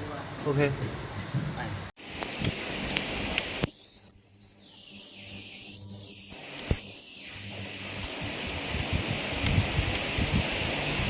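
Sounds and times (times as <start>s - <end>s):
ultrasonic welder high-pitched tone: 2.7s - 8.2s.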